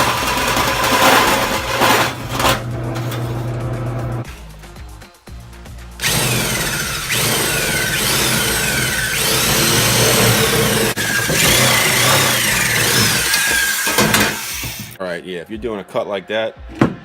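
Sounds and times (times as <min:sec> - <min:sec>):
metal squealing: 0:00.0 - 0:03.6, 0:06.0 - 0:15.0
power tool cutting sheet steel: 0:00.0 - 0:03.6, 0:06.0 - 0:15.0.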